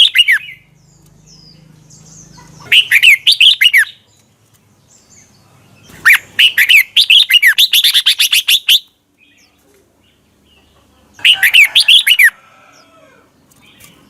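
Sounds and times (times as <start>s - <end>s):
bird singing whistled notes: 0.0s - 2.1s, 2.7s - 4.0s, 6.0s - 9.4s.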